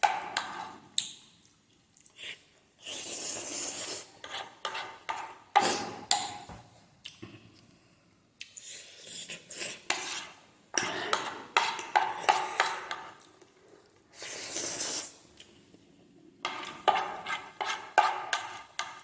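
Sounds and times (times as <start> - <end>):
utensils scraping a bowl: 2.9 - 6.3, 9.0 - 13.3, 16.4 - 19.0.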